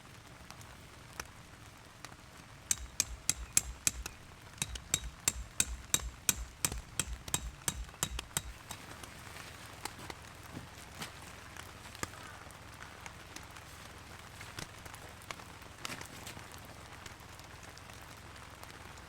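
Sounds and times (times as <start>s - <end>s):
hammer striking: 2.7s - 8.9s.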